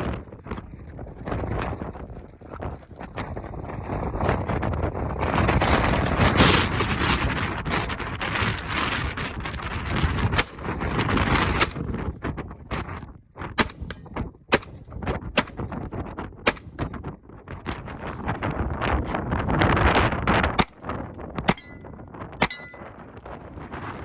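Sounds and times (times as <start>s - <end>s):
wind buffeting microphone: 0.0s - 24.0s
gunshots: 13.6s - 15.7s, 16.4s - 16.9s, 20.6s - 20.8s, 21.5s - 21.8s, 22.4s - 23.0s.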